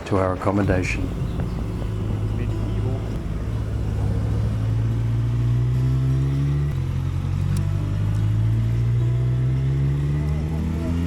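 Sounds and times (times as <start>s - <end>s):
motorcycle engine accelerating: 0.6s - 11.0s.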